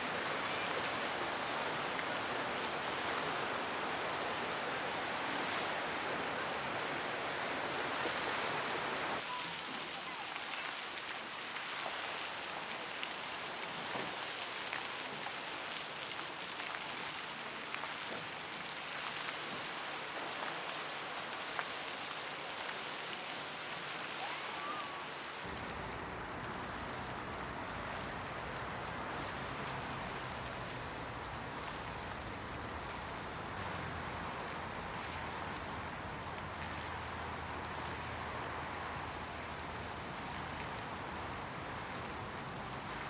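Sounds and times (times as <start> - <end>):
fountain water splashing: 0.0 - 43.0.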